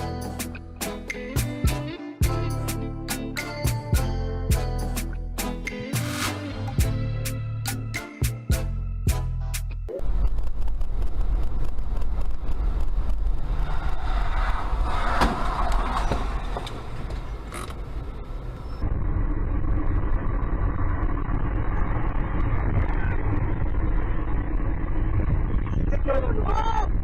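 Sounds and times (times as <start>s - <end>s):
vehicle road and engine noise: 9.5s - 27.0s.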